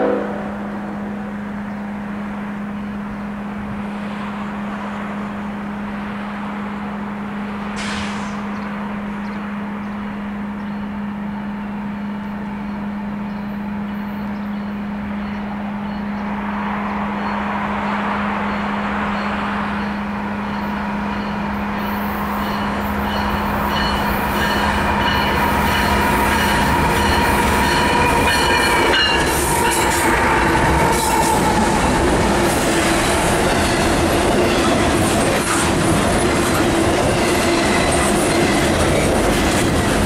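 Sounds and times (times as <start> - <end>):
train passing rumble: 0.0 - 40.0
brief hiss: 7.8 - 8.6.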